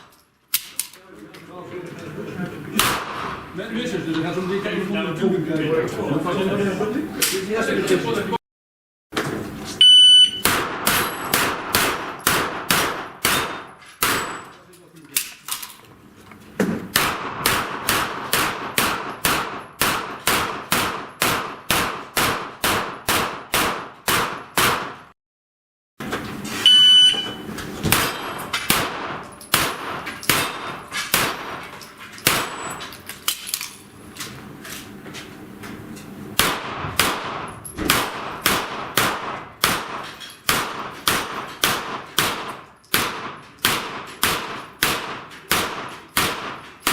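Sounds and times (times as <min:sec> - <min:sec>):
rapid pistol shots: 0:02.8 - 0:03.4, 0:10.4 - 0:14.4, 0:16.9 - 0:25.1, 0:27.9 - 0:32.7, 0:36.4 - 0:46.9
electronic shot timer beep: 0:09.8 - 0:10.5, 0:26.7 - 0:27.4.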